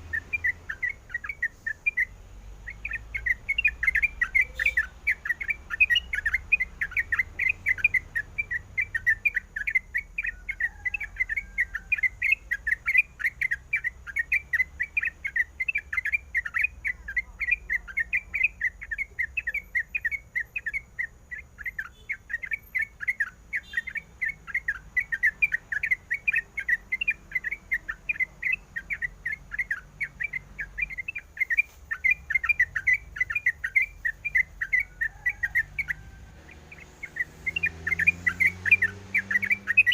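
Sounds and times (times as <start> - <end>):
bird chattering sharp chirps: 0.0 - 39.9.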